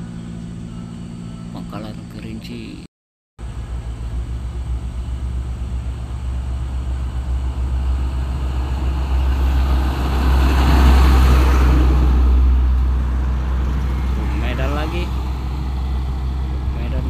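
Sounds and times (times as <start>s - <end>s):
truck passing by: 3.4s - 17.0s
tyres rushing on road: 4.7s - 17.0s.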